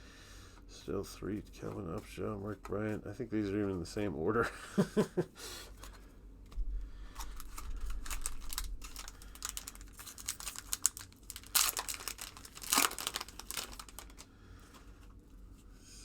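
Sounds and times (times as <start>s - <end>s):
wrapper ripping: 7.1s - 14.3s
wrapper crinkling: 7.1s - 14.8s.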